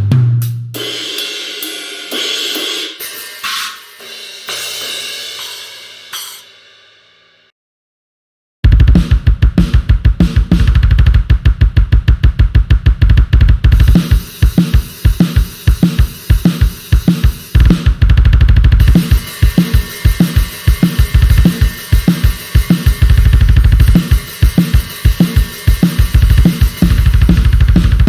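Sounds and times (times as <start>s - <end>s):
cymbals: 0.5s - 7.4s, 13.8s - 17.6s, 18.8s - 28.0s
bass drum strokes: 17.6s - 28.0s.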